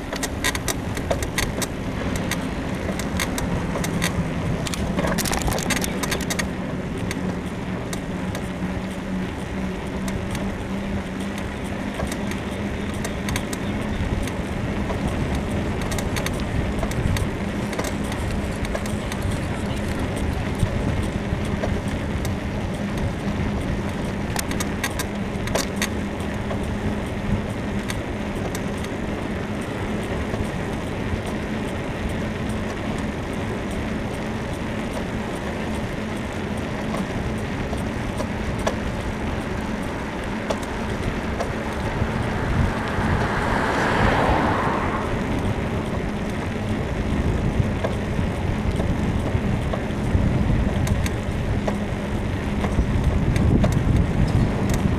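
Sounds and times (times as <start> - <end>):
bicycle tyres on road: 0.0 - 54.9
wind noise: 0.0 - 54.9
sharp clicks: 0.1 - 8.5
car passing: 38.8 - 47.7.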